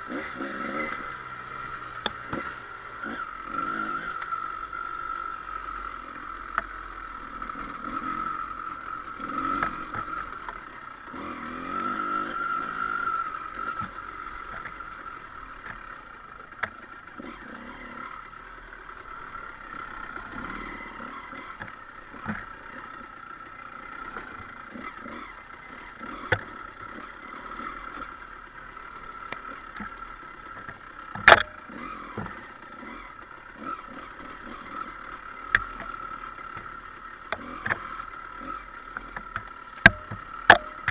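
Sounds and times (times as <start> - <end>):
dirt bike engine running: 0.0 - 40.9
sharp knocks and clatter: 30.6 - 31.6.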